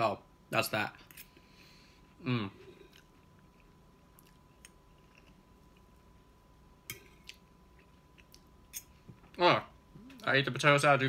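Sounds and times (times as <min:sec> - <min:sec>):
faint chewing: 0:01.1 - 0:06.2, 0:06.9 - 0:09.4.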